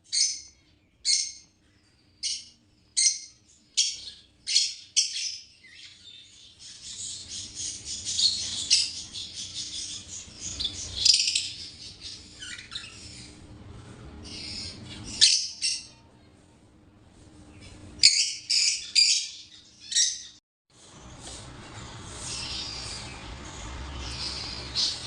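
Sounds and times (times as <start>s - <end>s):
parrots shrieking and chattering: 7.0s - 13.4s, 18.0s - 20.4s.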